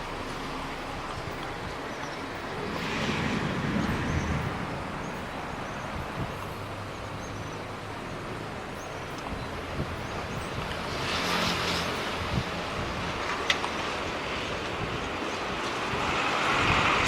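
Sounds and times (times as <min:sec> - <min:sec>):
steady rain: 0:00.0 - 0:17.0
low rumble of thunder: 0:00.1 - 0:07.2.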